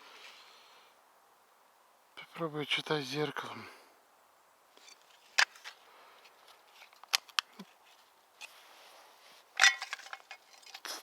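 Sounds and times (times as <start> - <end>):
hands rustling small objects: 4.8 - 11.0.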